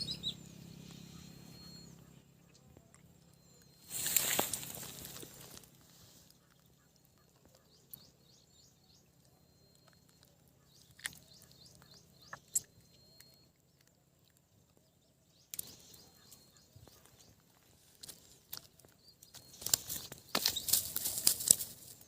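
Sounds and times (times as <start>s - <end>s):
faint bird chirping: 0.0s - 22.0s
brief rustle: 3.8s - 5.7s.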